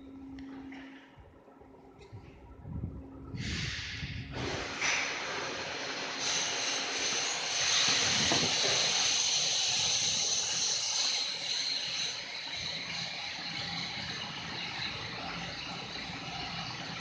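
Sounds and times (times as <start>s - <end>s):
cnc router spindle whine: 5.8s - 17.0s.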